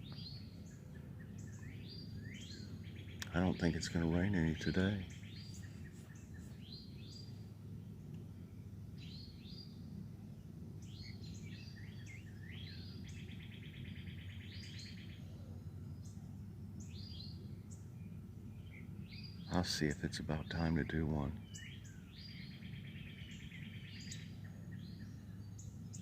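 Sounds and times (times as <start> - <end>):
bird trill: 0.0 - 10.0, 10.8 - 26.0
birds singing and chirping: 0.0 - 26.0
steady low rumble: 0.0 - 26.0.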